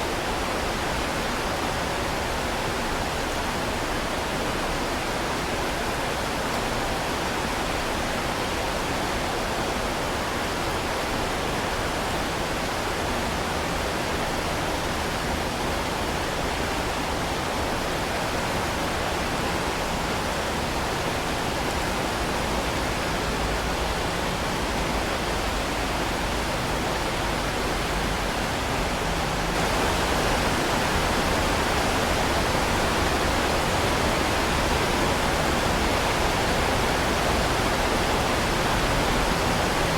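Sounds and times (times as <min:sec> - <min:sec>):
heavy rain hissing: 0:28.1 - 0:39.9.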